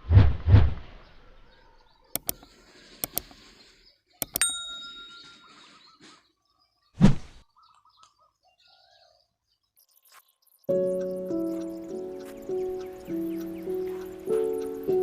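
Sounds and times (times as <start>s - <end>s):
faint bird chirps: 1.0s - 15.0s
sharp clicks: 2.2s - 3.4s, 4.2s - 4.8s
short ringing ding: 4.4s - 5.6s.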